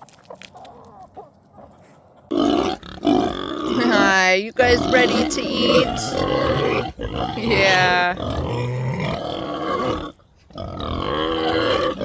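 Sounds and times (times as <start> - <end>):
pigs grunting: 0.6 - 12.0
person speaking a word: 7.4 - 8.2.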